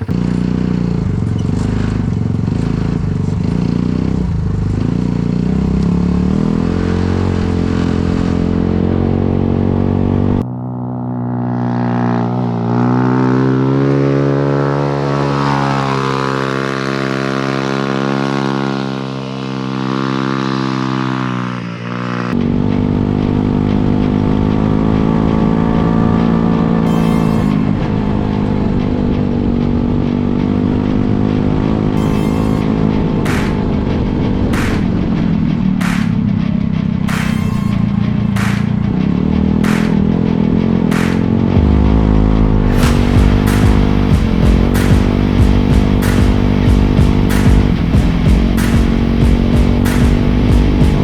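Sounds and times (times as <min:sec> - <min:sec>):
small engine running hard: 0:00.0 - 0:51.0
cleaner engine note: 0:23.9 - 0:51.0.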